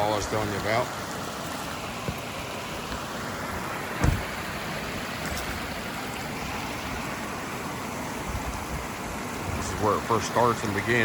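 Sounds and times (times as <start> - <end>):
waterfall splashing: 0.0 - 11.0
thump: 4.0 - 4.4.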